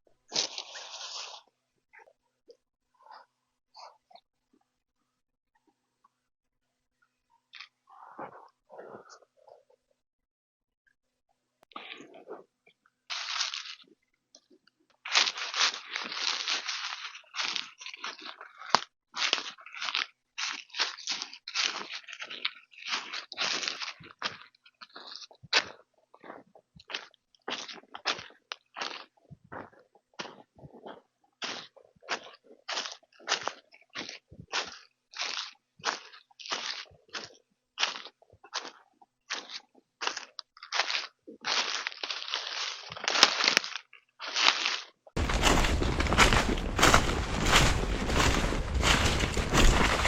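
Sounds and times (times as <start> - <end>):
dry leaves crunching: 0.3 - 1.4, 13.1 - 13.9, 15.1 - 24.0, 40.1 - 50.0
short crunches: 45.2 - 50.0.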